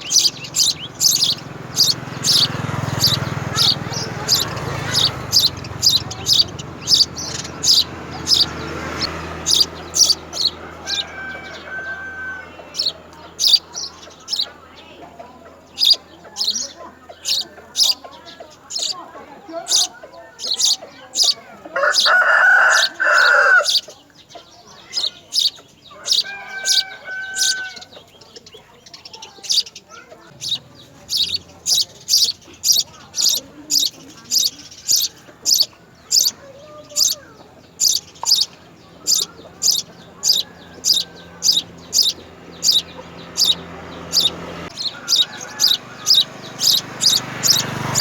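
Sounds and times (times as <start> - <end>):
baby birds chirping: 0.0 - 48.0
rooster crowing: 0.1 - 13.6, 21.7 - 23.9, 25.9 - 27.9, 39.1 - 48.0.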